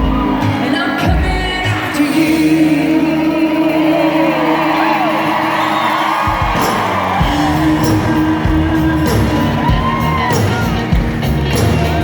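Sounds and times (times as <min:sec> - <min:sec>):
audience whooping and whistling: 0:00.0 - 0:00.8, 0:03.9 - 0:12.0
live band playing: 0:00.0 - 0:12.0
held bass notes: 0:06.2 - 0:12.0.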